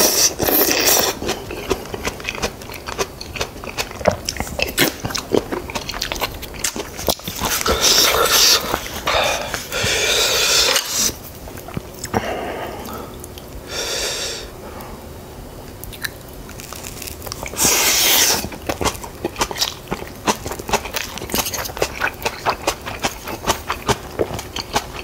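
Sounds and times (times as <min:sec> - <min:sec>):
crisp crunching while chewing: 0:00.0 - 0:09.8, 0:15.7 - 0:25.0.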